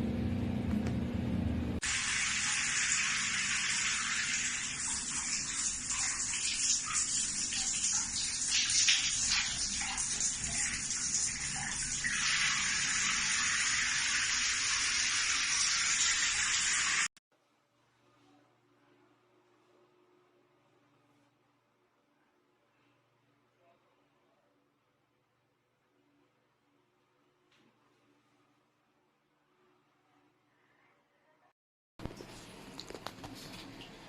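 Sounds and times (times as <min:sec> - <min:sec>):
low hum: 0:00.0 - 0:01.8
shower water spraying: 0:01.8 - 0:17.1.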